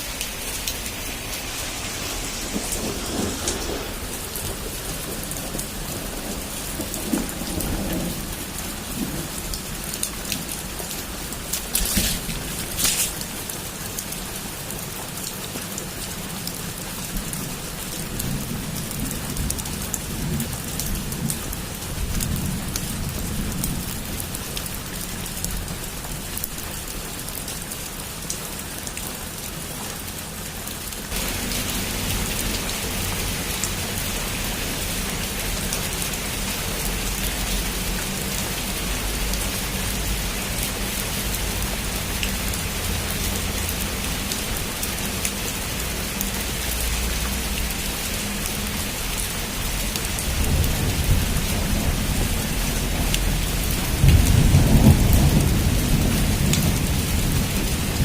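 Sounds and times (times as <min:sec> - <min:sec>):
heavy rain on a roof: 0:00.0 - 0:58.0
low rumble: 0:00.3 - 0:06.4.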